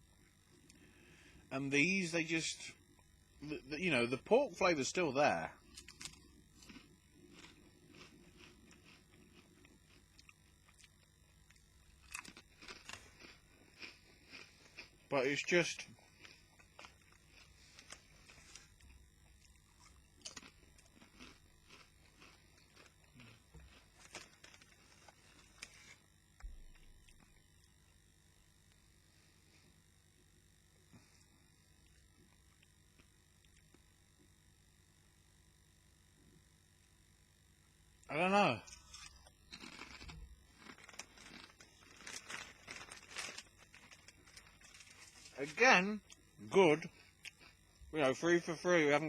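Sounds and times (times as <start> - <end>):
chewing crisps: 3.4 - 27.5, 38.6 - 47.9
crisp packet crackling: 23.7 - 25.9, 38.9 - 45.6.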